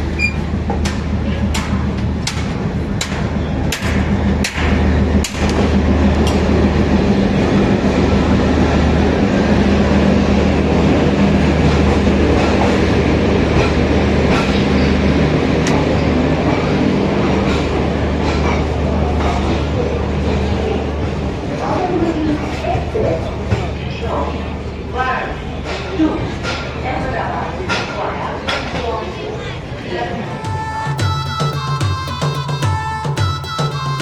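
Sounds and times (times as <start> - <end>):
train rolling rumble: 0.0 - 31.9.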